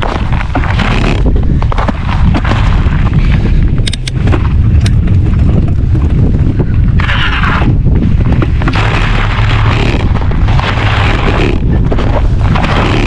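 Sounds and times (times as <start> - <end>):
wind buffeting microphone: 0.0 - 13.0
sharp clicks: 3.8 - 5.2.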